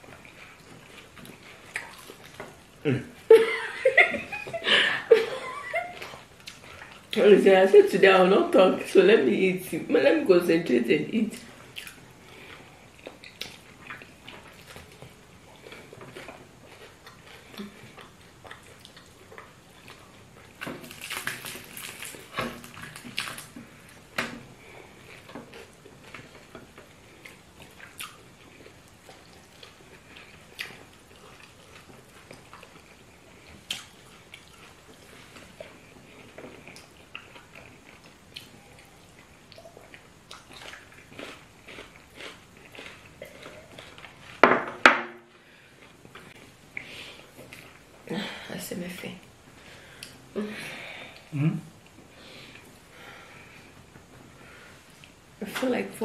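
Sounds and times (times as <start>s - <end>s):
chewing and lip smacking: 0.0s - 2.6s, 11.6s - 23.6s, 25.0s - 44.4s.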